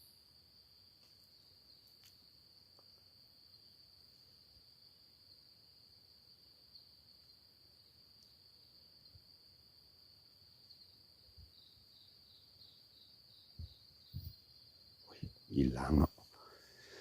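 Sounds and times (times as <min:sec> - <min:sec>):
crickets chirring: 0:00.0 - 0:17.0
faint ticks: 0:01.0 - 0:03.1, 0:08.1 - 0:08.4.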